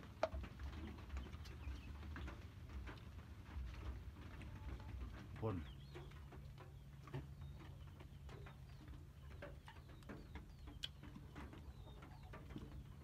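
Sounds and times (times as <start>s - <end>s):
bird chirps: 5.6s - 13.0s.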